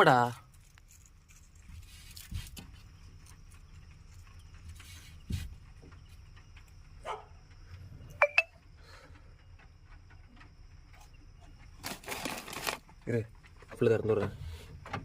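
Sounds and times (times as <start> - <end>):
dull thump: 5.2 - 5.9.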